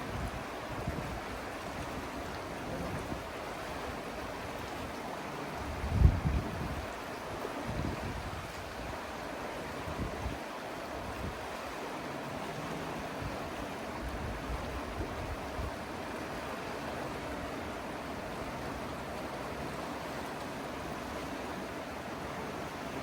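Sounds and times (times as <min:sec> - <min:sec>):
river rushing: 0:00.0 - 0:23.0
wind buffeting microphone: 0:05.7 - 0:07.0.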